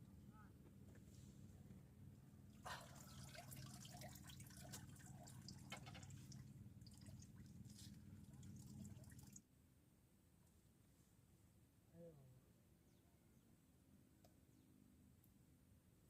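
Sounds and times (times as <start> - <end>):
low steady hum: 0.0 - 16.0
water dripping and trickling: 2.7 - 9.4.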